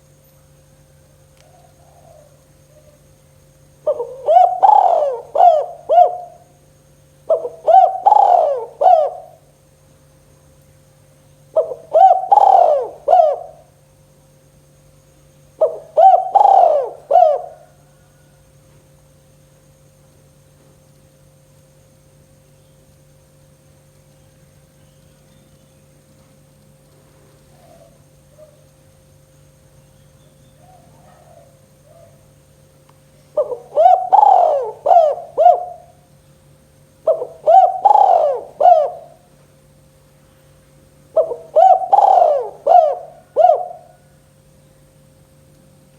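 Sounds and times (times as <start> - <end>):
faint steady hum: 0.0 - 45.9
dove cooing: 1.4 - 3.1, 3.8 - 6.6, 7.2 - 9.6, 11.5 - 13.8, 15.6 - 18.4, 27.5 - 28.7, 30.5 - 32.3, 33.3 - 36.1, 37.0 - 39.3, 41.1 - 44.2.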